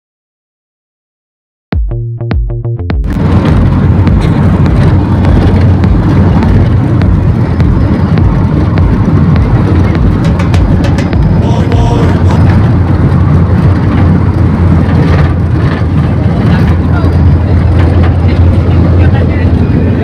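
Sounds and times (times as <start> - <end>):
road and wind noise in vehicle: 3.0 - 20.0
rattles and ticks: 3.2 - 19.1.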